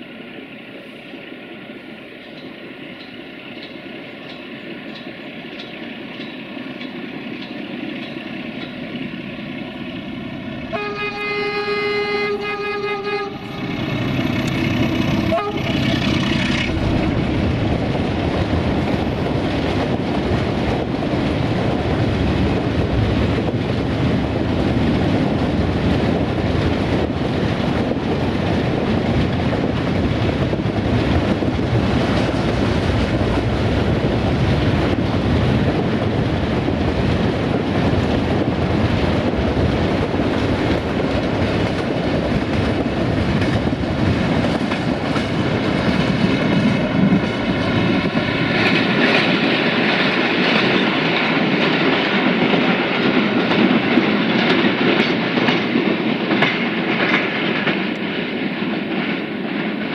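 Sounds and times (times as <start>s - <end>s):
diesel locomotive engine: 0.0s - 59.9s
locomotive horn: 10.7s - 13.7s, 15.0s - 16.8s
freight wagons rumbling: 13.4s - 52.7s.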